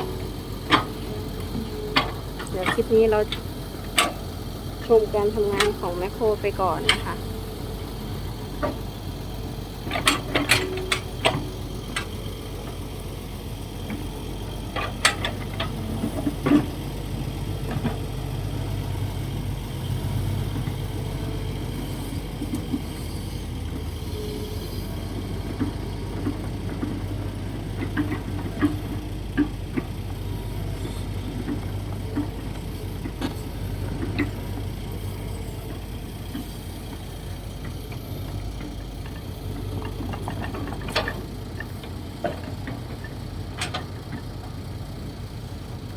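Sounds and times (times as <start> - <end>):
excavator diesel engine running: 0.0 - 45.9
metallic clanks of excavator bucket: 0.6 - 4.2, 6.8 - 7.2, 9.8 - 12.2, 14.7 - 16.7, 38.6 - 44.3.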